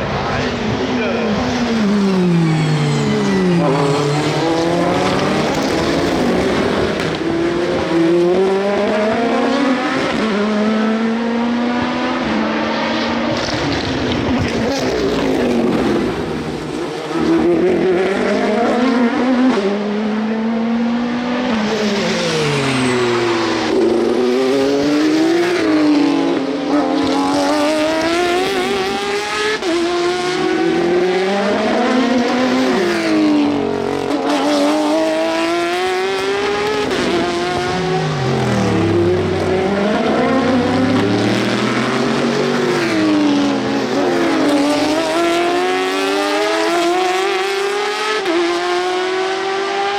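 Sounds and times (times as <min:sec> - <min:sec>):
race cars passing: 0:00.0 - 0:49.9.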